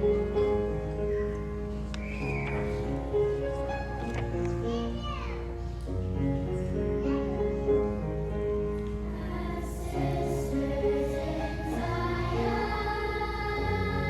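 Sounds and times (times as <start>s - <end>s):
choir singing: 9.0s - 14.0s.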